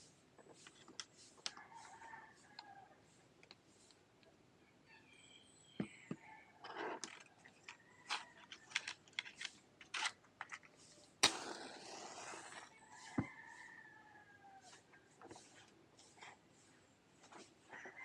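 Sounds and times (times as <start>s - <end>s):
small items clicking and knocking: 6.7s - 12.7s
rooster crowing: 12.7s - 14.8s.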